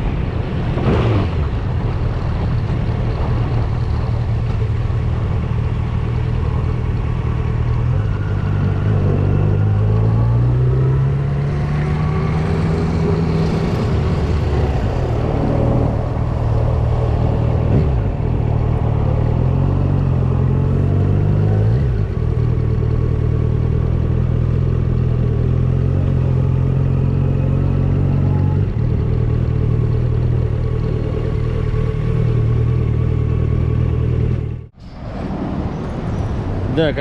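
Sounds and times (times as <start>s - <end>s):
motorcycle engine running: 21.9s - 34.8s.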